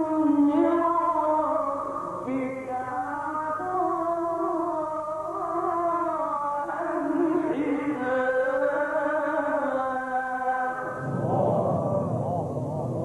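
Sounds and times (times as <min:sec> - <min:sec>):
man chanting melodic recitation: 0:00.0 - 0:13.0.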